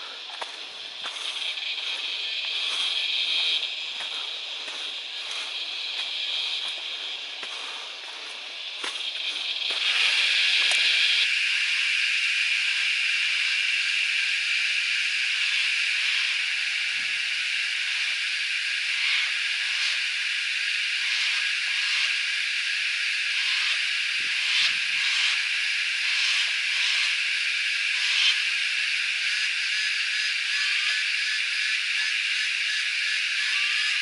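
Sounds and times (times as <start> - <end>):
cicadas shrilling: 0.0 - 34.0.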